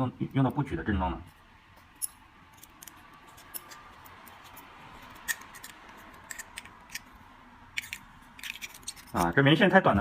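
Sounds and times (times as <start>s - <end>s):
metal tools scraping: 1.9s - 7.1s, 7.8s - 9.5s.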